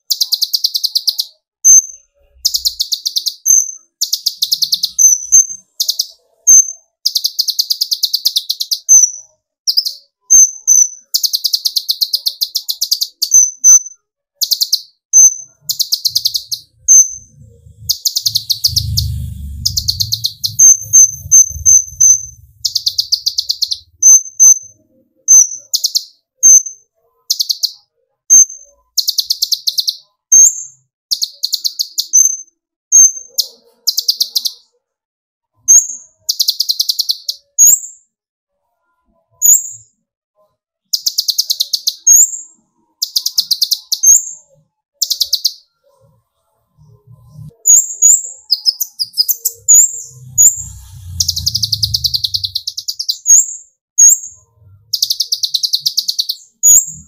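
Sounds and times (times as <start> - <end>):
thin bird chirps: 0.0 - 34.7, 35.6 - 38.1, 38.9 - 57.0
faint low rumble: 16.8 - 22.8, 49.6 - 52.6.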